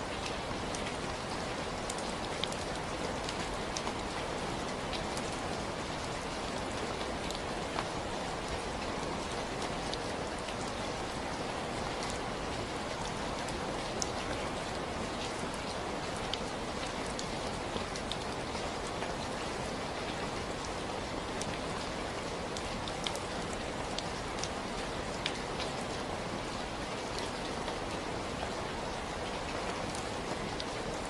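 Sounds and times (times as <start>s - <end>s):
steady rain falling: 0.0s - 31.0s
rain drop ticks: 1.8s - 4.0s, 22.5s - 24.6s, 25.2s - 25.8s.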